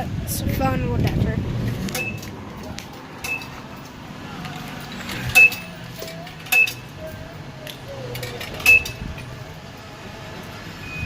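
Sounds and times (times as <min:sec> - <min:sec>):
coins clinking into coin slot: 0:04.7 - 0:07.0, 0:08.0 - 0:09.0.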